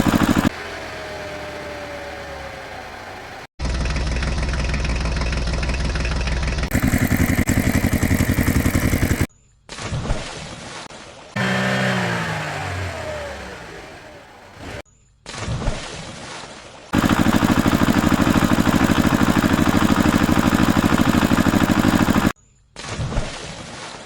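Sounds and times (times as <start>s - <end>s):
cartoon engine sound effects: 0.0s - 5.5s, 6.6s - 9.3s, 17.0s - 22.4s.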